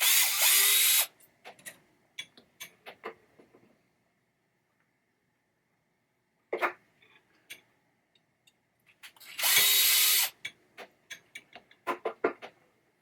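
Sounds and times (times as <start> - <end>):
power drill spinning: 0.0 - 1.1, 9.2 - 10.4.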